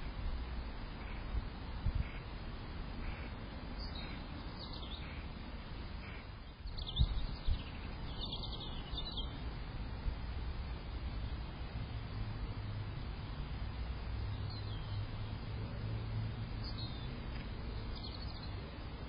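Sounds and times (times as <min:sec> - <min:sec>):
low background rumble: 0:00.0 - 0:19.0
small birds chirping: 0:00.9 - 0:02.3, 0:03.0 - 0:09.5, 0:13.2 - 0:15.5, 0:16.5 - 0:18.9.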